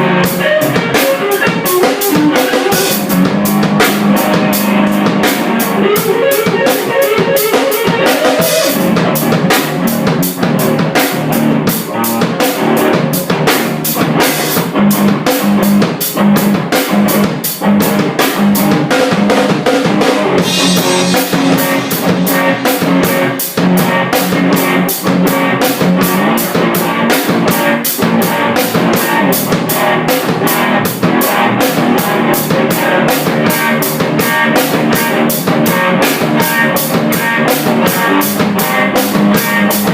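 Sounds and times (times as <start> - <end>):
drum kit beat: 0.0 - 39.9
electric guitar notes: 0.0 - 39.9.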